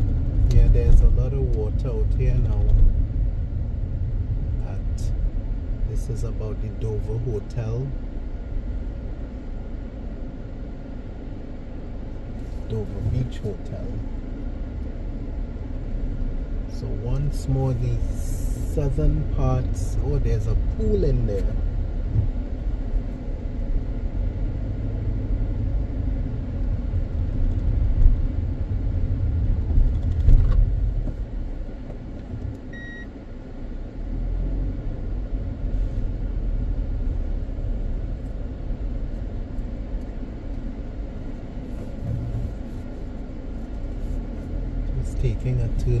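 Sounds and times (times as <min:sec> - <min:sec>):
car engine and tyres rumbling: 0:00.0 - 0:46.0
short electronic beep: 0:32.7 - 0:33.1.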